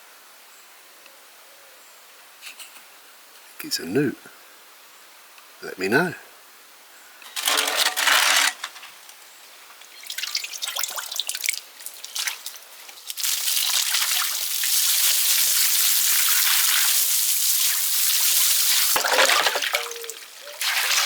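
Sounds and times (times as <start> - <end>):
water running into a drain: 9.8 - 21.0
water splashing and dripping: 9.8 - 21.0.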